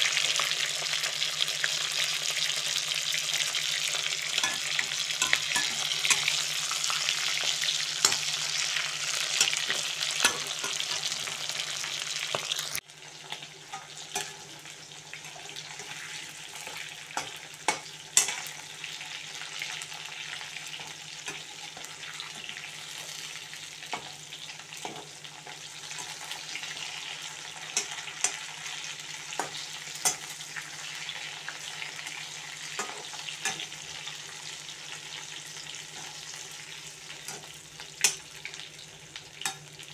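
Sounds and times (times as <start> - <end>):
chicken sizzling in oil: 0.0 - 39.9
spoon scraping and clicking on wok: 4.4 - 6.4, 8.0 - 8.4, 9.3 - 11.1, 13.7 - 14.4, 16.6 - 18.6, 27.7 - 28.5, 29.3 - 30.4.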